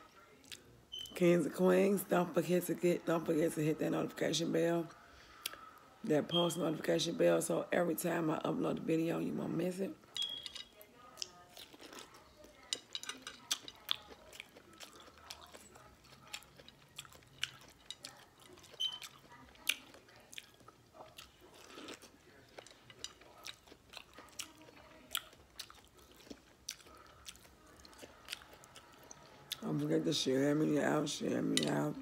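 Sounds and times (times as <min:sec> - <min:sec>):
biting and chewing corn: 0:11.2 - 0:29.6.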